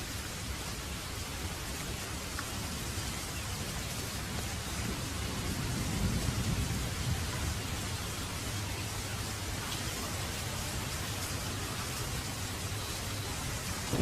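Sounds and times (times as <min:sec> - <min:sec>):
heavy rain falling: 0:00.0 - 0:14.0
distant thunder rumble: 0:04.7 - 0:09.6, 0:13.6 - 0:14.0.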